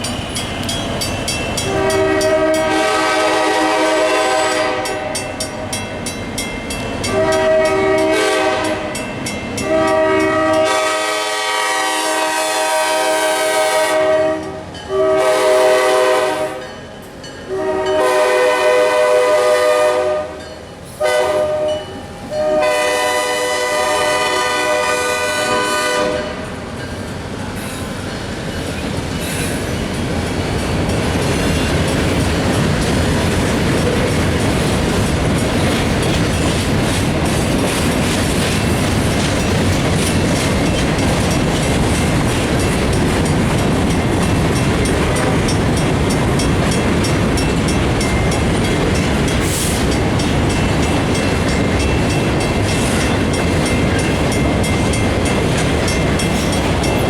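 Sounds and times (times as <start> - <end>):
train wheels clattering on rails: 0.0 - 13.5, 26.3 - 57.0.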